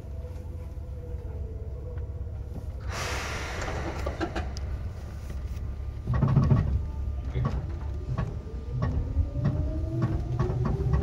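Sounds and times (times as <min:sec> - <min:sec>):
electric train running rumble: 0:00.0 - 0:11.0
sudden air hiss: 0:02.8 - 0:05.9.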